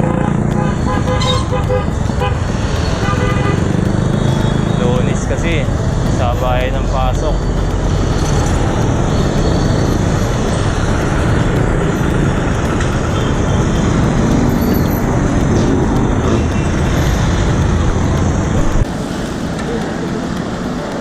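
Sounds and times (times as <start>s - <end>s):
road traffic noise: 0.0s - 21.0s.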